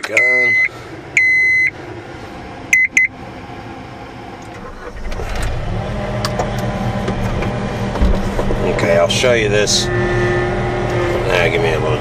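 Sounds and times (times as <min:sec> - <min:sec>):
car engine idling: 0:00.0 - 0:12.0
vehicle warning buzzer beeps: 0:00.1 - 0:01.8, 0:02.7 - 0:03.1.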